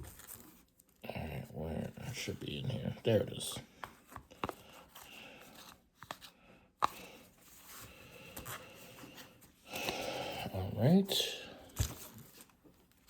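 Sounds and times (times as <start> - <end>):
cards rustling: 0.0 - 1.0, 1.7 - 10.2, 11.6 - 13.0
cards clicking and tapping: 3.7 - 7.2.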